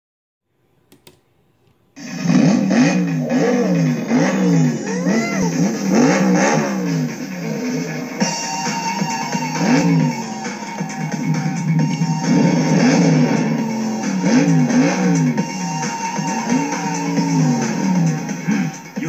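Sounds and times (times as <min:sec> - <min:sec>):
cartoon car engines revving: 0:02.0 - 0:19.0
steady high tone: 0:04.4 - 0:06.2.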